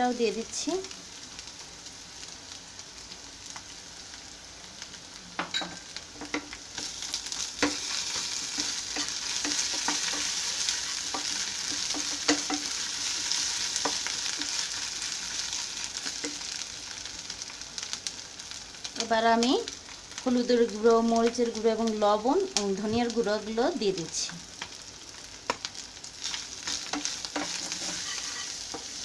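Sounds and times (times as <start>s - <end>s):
onions sizzling in hot oil: 0.0s - 29.0s
wooden spatula scraping: 6.2s - 15.1s, 26.3s - 29.0s
spatula knocking on pan: 7.6s - 7.9s, 8.5s - 10.4s, 11.1s - 12.7s.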